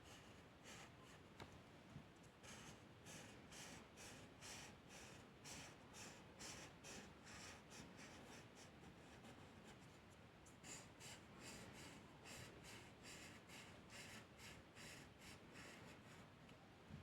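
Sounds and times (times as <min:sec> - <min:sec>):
drawing tool scratching paper: 0:02.4 - 0:09.8, 0:10.6 - 0:16.2.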